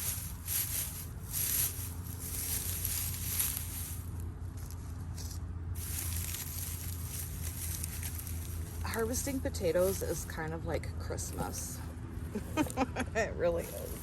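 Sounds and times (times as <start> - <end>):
steady low hum: 0.0 - 14.0
straw and soil rustling: 0.0 - 14.0.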